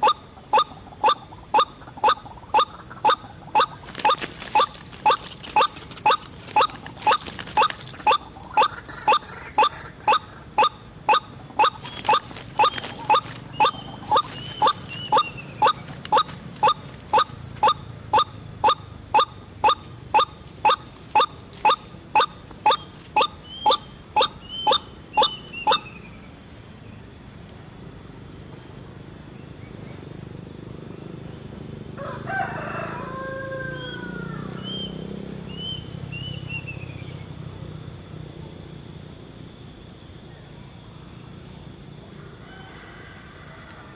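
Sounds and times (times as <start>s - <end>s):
waterhen calling: 0.0s - 25.9s
gliding bird call: 0.0s - 26.0s
small birds chirping: 0.0s - 27.5s, 33.9s - 38.9s.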